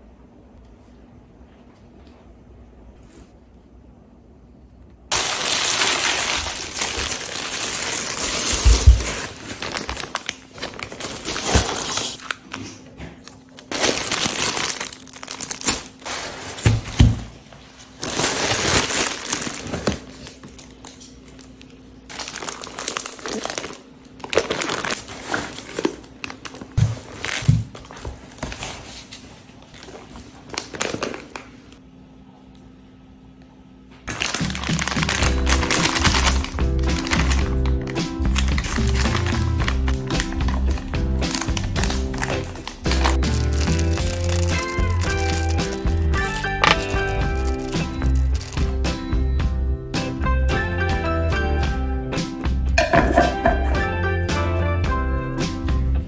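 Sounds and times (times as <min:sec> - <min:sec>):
plastic bags rustling: 0:05.1 - 0:31.8, 0:34.0 - 0:48.8
items thudding on table: 0:08.5 - 0:09.3, 0:46.6 - 0:47.1.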